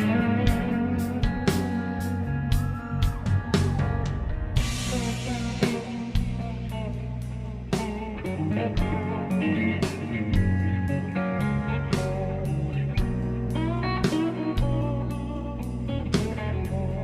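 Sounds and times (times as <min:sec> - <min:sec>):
electric guitar lines: 0:00.0 - 0:17.0
slowed-down blues music: 0:00.0 - 0:17.0
cymbal crash: 0:04.4 - 0:06.7.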